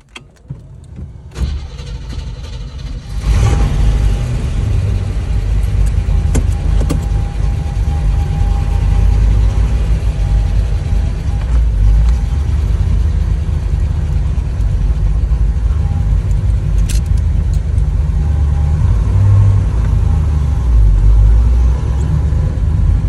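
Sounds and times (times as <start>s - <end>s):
car engine cranking and running: 0.0s - 23.0s.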